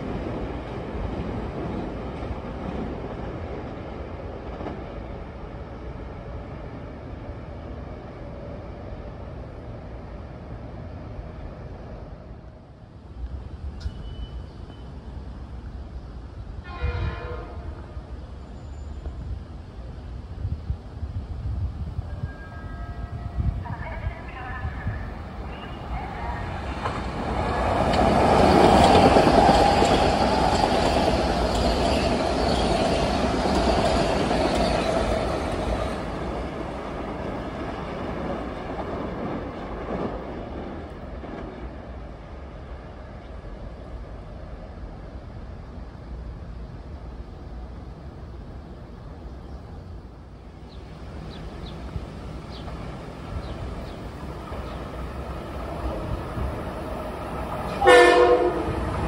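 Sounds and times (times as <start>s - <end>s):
commuter train rail rumble: 0.0s - 59.0s
train wheels clicking over rails: 26.7s - 41.7s.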